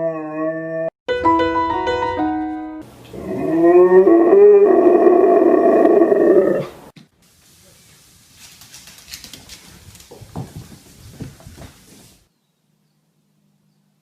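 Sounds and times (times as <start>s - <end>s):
dog howling: 0.0s - 0.9s.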